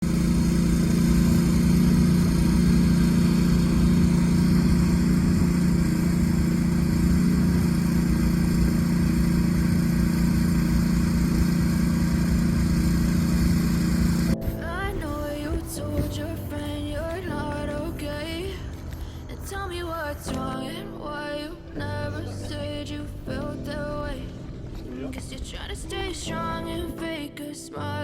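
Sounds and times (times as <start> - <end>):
steady engine-like hum: 0.0 - 20.1.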